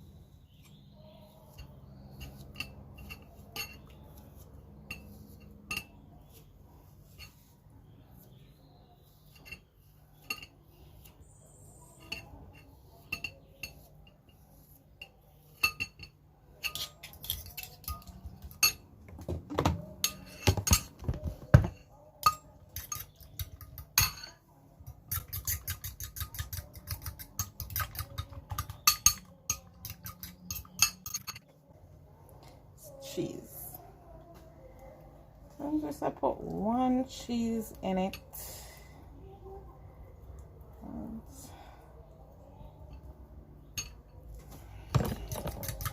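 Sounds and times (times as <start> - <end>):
metal cutlery clinking against a bowl: 1.5 - 6.1, 9.2 - 11.1, 11.9 - 18.9, 19.9 - 21.2, 21.8 - 31.6, 45.0 - 45.9.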